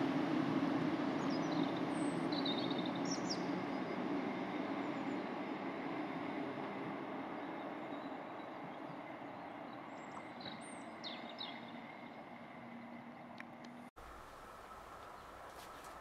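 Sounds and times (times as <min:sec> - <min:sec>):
passenger train rumble: 0:00.0 - 0:16.0
faint steady whine: 0:12.0 - 0:16.0.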